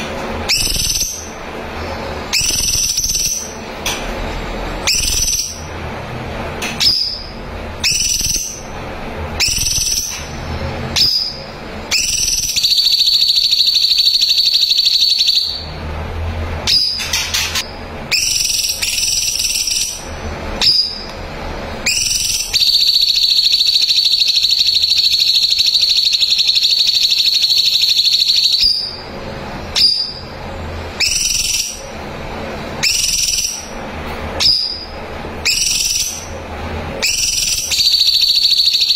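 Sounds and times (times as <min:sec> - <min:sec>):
bird singing whistled notes: 0:00.5 - 0:01.3, 0:02.3 - 0:03.6, 0:04.8 - 0:05.7, 0:06.8 - 0:08.7, 0:09.4 - 0:10.2, 0:11.0 - 0:15.6, 0:16.7 - 0:21.1, 0:21.8 - 0:29.0, 0:29.7 - 0:30.2, 0:31.0 - 0:31.9, 0:32.8 - 0:33.7, 0:34.4 - 0:36.3, 0:37.0 - 0:38.9.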